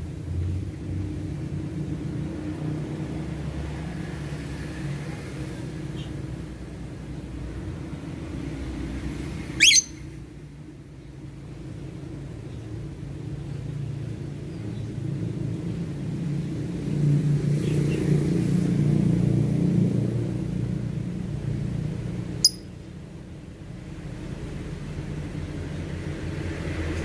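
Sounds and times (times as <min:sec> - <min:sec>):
vehicle engine rumble passing: 0:00.0 - 0:27.0
high bird chirp: 0:09.6 - 0:10.1, 0:22.4 - 0:22.7.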